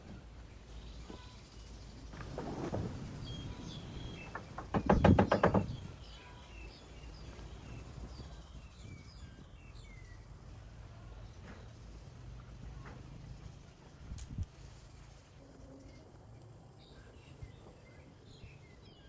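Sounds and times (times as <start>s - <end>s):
small birds chirping: 0.1s - 13.8s, 14.6s - 19.0s
rattling burst of rapid knocks: 4.0s - 6.0s.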